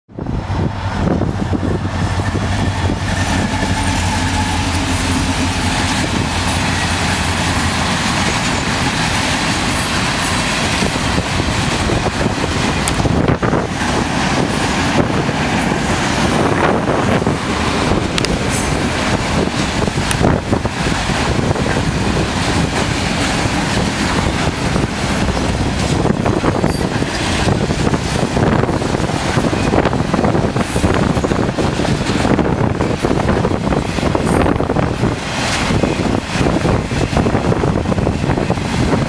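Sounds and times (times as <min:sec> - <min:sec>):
diesel locomotive engines humming: 0:00.1 - 0:39.0
freight cars rumbling past: 0:00.1 - 0:39.0
wheels clicking on rails: 0:01.6 - 0:39.0.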